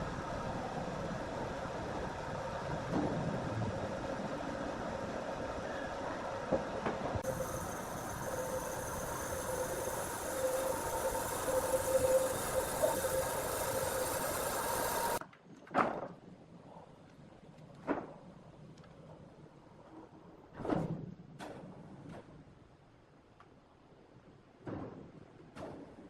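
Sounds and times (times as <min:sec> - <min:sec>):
sawmill machinery humming: 0:07.2 - 0:15.2.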